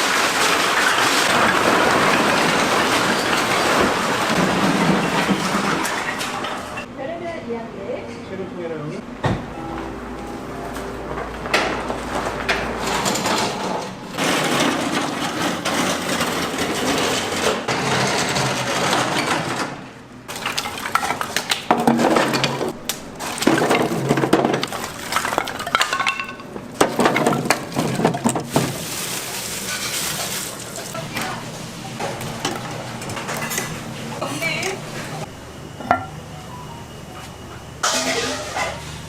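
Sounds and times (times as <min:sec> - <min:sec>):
dishes and cookware clattering: 0:10.7 - 0:19.7, 0:20.3 - 0:28.8, 0:32.0 - 0:34.8, 0:37.8 - 0:39.0.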